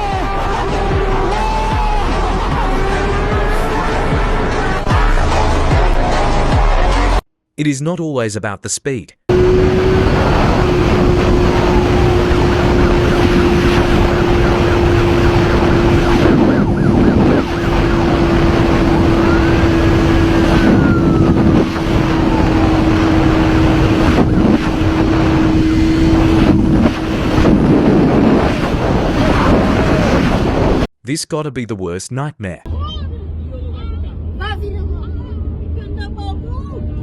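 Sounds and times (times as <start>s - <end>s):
motorcycle engine riding: 9.3s - 29.5s
faint rising and falling wails: 9.3s - 30.9s
heavy wind noise: 9.3s - 30.9s.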